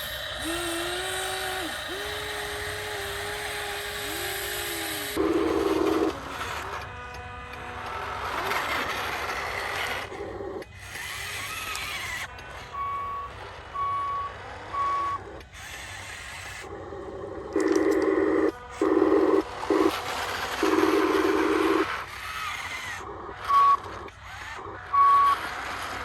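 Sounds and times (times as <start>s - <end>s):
truck reversing beeper: 0.0s - 6.8s, 11.2s - 16.0s, 16.6s - 22.2s, 23.1s - 24.1s, 24.8s - 25.6s
truck noise: 0.0s - 26.0s.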